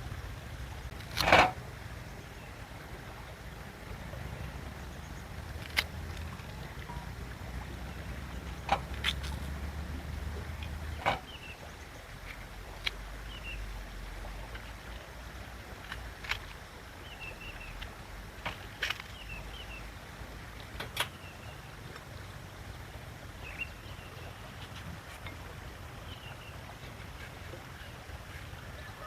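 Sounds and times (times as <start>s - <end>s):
low steady outdoor rumble: 0.0s - 29.0s
small birds chirping: 4.1s - 15.0s, 17.0s - 18.0s, 18.7s - 20.0s, 23.4s - 25.0s, 25.8s - 29.0s.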